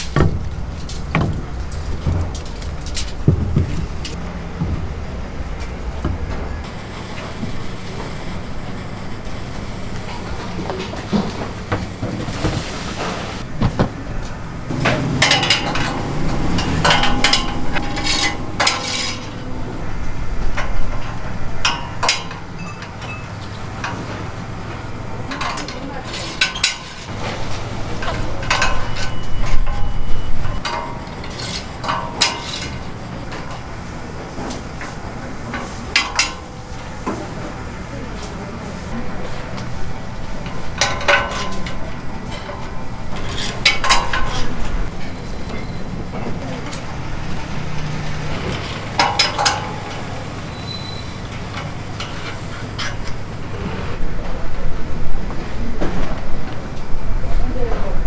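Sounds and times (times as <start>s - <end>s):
pans and utensils clanking: 0.0s - 9.0s, 10.1s - 55.1s
kitchen clatter: 0.0s - 55.2s
low rumble: 14.6s - 21.7s.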